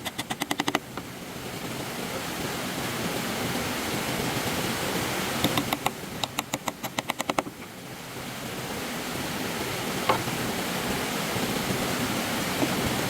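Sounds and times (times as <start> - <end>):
stream water rushing: 0.0 - 13.0
sharp knocks: 10.1 - 10.3.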